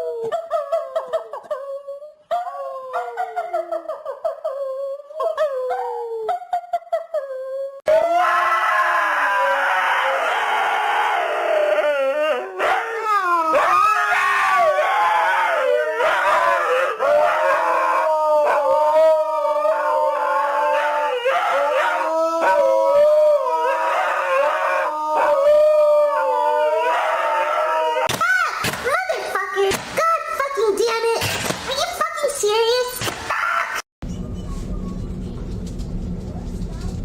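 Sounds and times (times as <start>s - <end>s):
dog howling: 7.1s - 28.1s.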